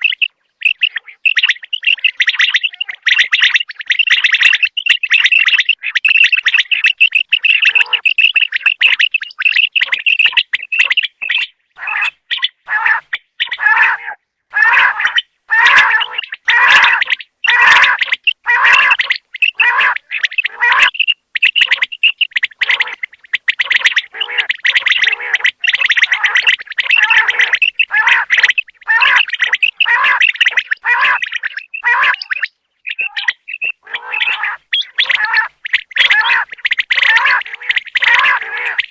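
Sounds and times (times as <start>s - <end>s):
quail chirping calls: 0.0s - 38.9s.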